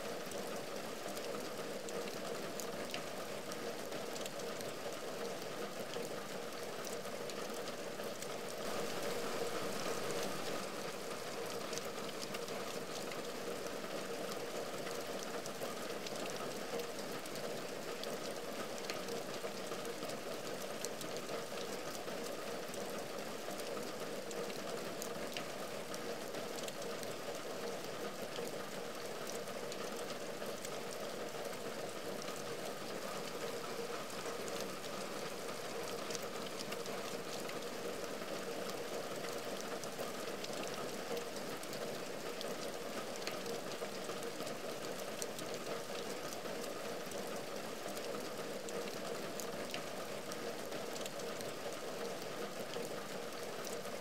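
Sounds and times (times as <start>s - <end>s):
rain on a window: 0.0s - 54.0s
raindrop ticks: 38.6s - 53.8s.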